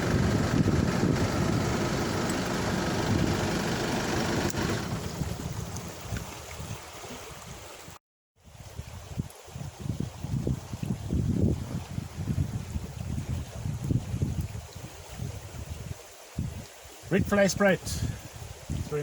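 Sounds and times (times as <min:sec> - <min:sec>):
road rumble and wind noise: 0:00.0 - 0:06.7.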